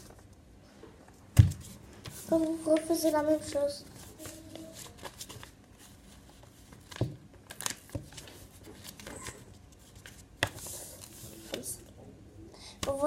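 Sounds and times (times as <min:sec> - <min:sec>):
paper rustling and crackling: 0:01.5 - 0:11.8.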